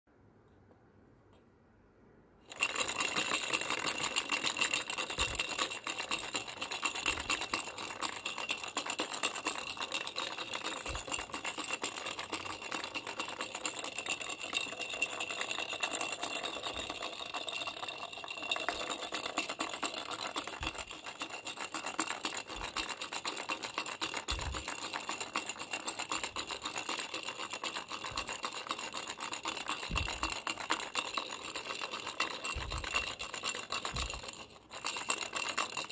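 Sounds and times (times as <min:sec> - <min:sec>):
baby rattle shaken rapidly: 0:02.5 - 0:35.9.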